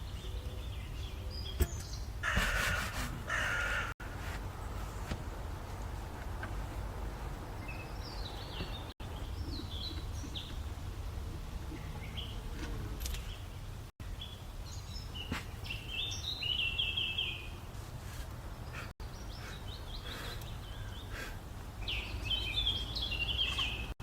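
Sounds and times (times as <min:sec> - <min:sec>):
songbird chirping: 0:03.5 - 0:17.7, 0:18.6 - 0:24.0.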